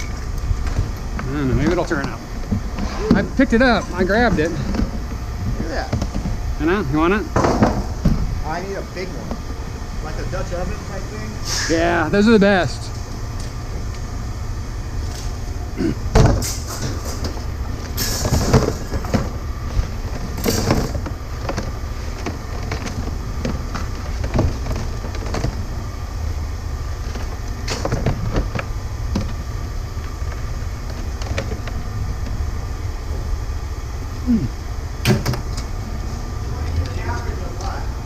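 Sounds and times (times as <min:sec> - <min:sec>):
steady low rumble: 0:00.0 - 0:38.0
metal scrap clattering: 0:16.2 - 0:25.6.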